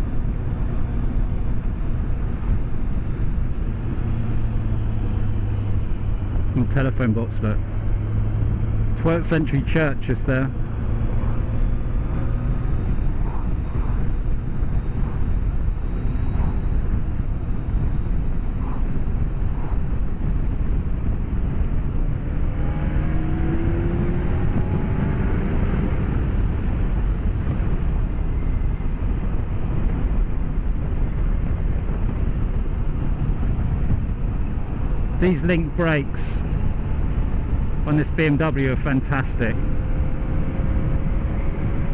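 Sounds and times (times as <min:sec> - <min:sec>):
motorcycle engine: 0:00.0 - 0:41.9
wind and road rush: 0:00.0 - 0:41.9.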